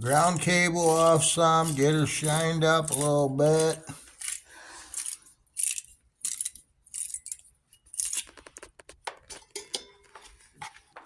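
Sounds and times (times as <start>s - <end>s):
brush scrubbing metal terminal: 0.0s - 8.2s.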